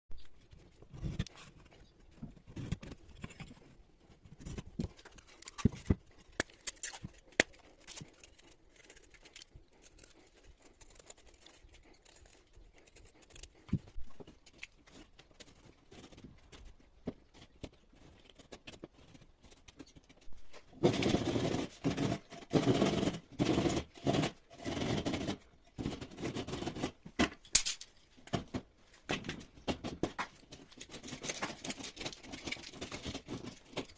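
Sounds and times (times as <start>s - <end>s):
hand tools scraping plasterboard: 20.7s - 27.1s.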